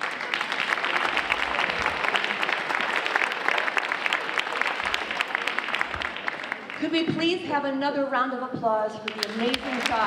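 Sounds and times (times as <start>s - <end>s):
audience applauding: 0.0s - 6.8s, 9.1s - 10.0s.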